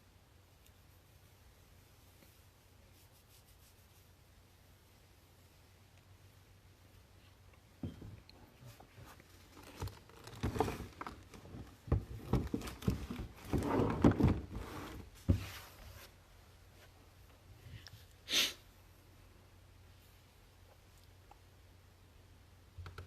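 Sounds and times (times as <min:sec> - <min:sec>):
objects rustling and knocking: 0:07.7 - 0:16.2
short hiss burst: 0:18.2 - 0:18.6.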